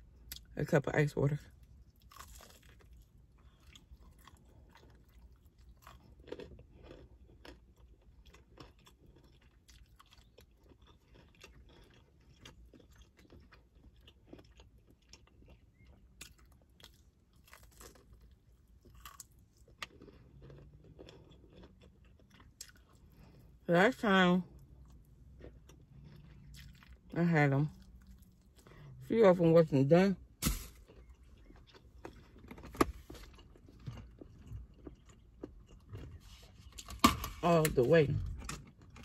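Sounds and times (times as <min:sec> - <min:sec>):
chewing crispy chicken: 0:01.4 - 0:29.4, 0:30.2 - 0:36.9
breading crunching: 0:01.6 - 0:23.5, 0:30.2 - 0:37.6.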